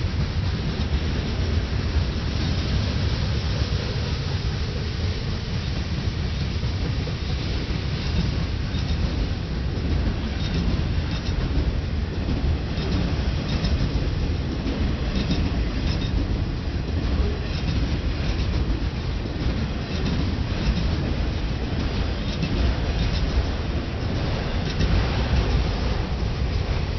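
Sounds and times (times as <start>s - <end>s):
freight train rumbling: 0.0s - 26.9s
wheels clicking over rails: 5.6s - 26.9s.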